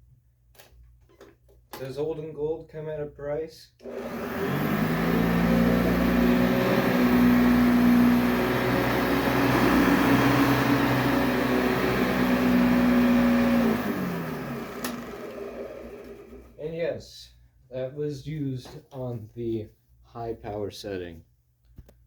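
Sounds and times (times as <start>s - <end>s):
vacuum cleaner motor whining: 3.8s - 16.6s
click: 14.8s - 15.0s.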